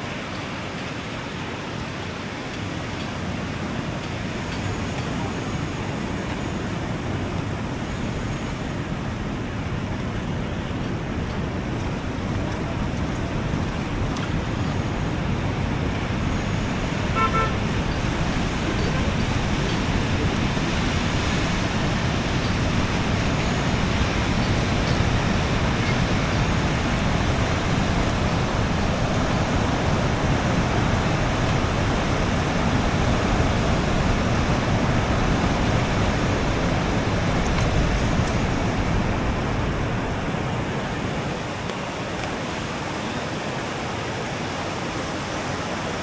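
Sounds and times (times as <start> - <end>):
road traffic noise: 0.0 - 46.0
car horn toot: 16.9 - 19.2.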